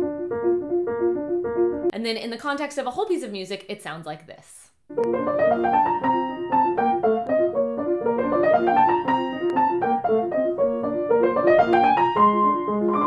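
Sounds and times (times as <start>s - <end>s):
grand piano classical passage: 0.0s - 1.9s, 4.9s - 13.0s.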